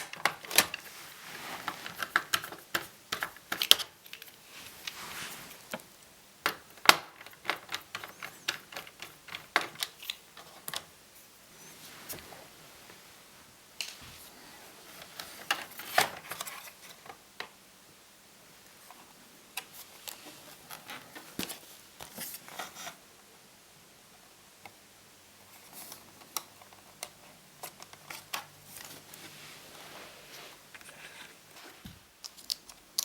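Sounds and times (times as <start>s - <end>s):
plastic clicks: 5.7s - 10.9s.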